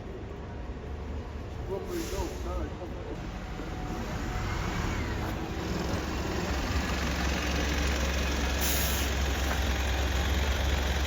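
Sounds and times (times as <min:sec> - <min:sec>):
road vehicle rumbling: 0:00.0 - 0:11.0.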